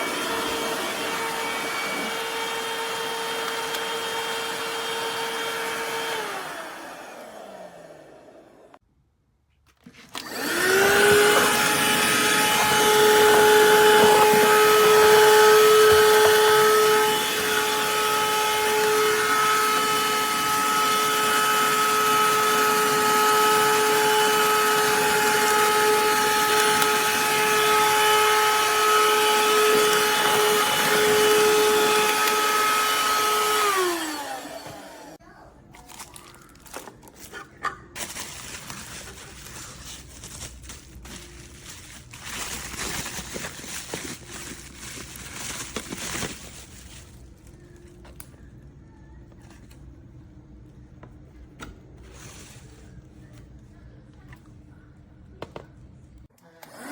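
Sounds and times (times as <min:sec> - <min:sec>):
handheld vacuum motor whine: 0:00.0 - 0:08.8, 0:10.1 - 0:35.2, 0:41.8 - 0:47.1, 0:56.4 - 0:56.9.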